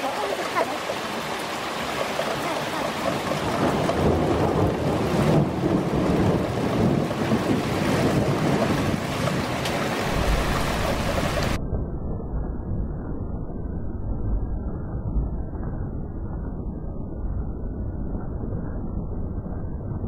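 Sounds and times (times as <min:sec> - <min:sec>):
rain falling: 0:00.0 - 0:11.6
thunder rumbling: 0:01.0 - 0:20.0.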